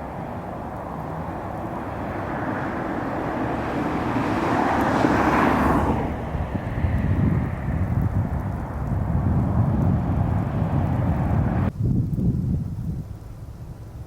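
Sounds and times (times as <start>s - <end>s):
vehicle driving past: 0.0s - 11.7s
wind on microphone: 0.0s - 14.0s
low rumble: 5.8s - 13.2s.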